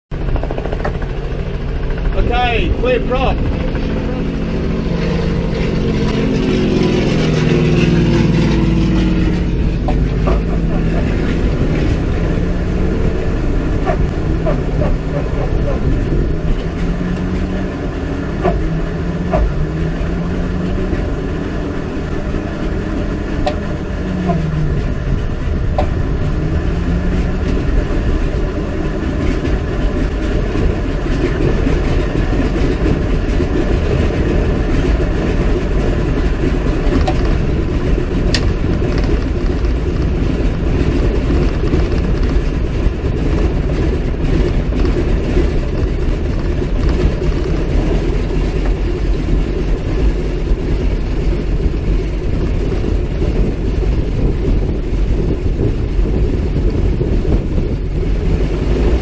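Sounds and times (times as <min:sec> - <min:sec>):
radial aircraft engine running: 0:00.1 - 0:59.0.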